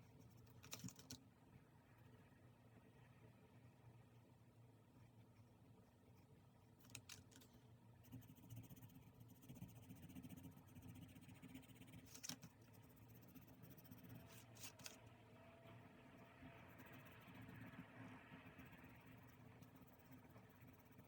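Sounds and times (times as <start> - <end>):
paper rustling: 12.1 - 12.5, 14.3 - 15.0.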